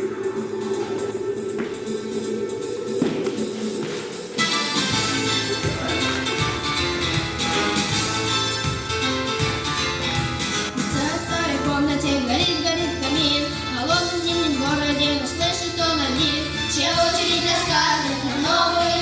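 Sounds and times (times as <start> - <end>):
instrumental accompaniment: 0.0 - 19.0
child singing: 11.0 - 19.0.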